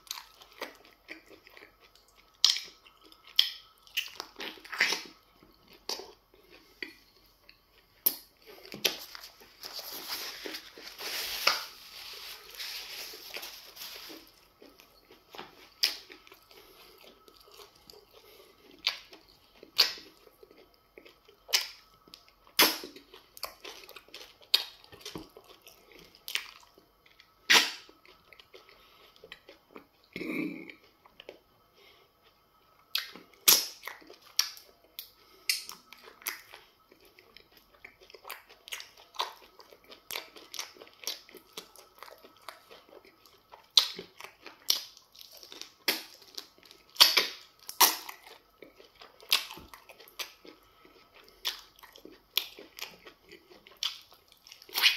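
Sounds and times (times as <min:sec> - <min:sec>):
wet chewing and lip-smacking: 0:00.1 - 0:09.6, 0:14.6 - 0:29.9, 0:32.2 - 0:54.9
tissue rubbing nose: 0:09.0 - 0:14.3.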